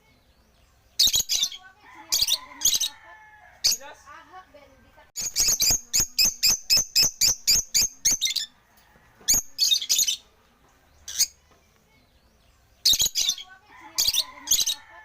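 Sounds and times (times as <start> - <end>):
lovebirds chirping shrilly: 0.2 - 3.9, 5.2 - 8.6, 9.3 - 10.3, 11.0 - 11.4, 12.1 - 15.0.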